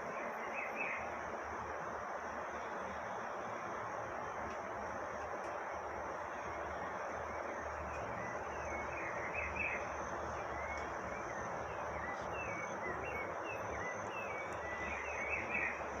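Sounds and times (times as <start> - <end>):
background hiss: 0.0 - 16.0
bird chirps: 7.9 - 15.9.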